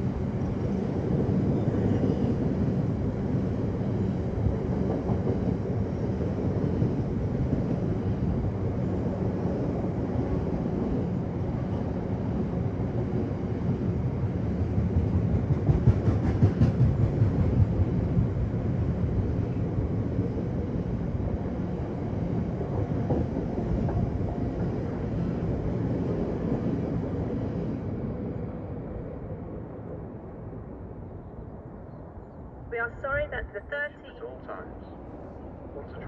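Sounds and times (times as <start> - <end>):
train wheels clattering on rails: 14.9 - 18.0.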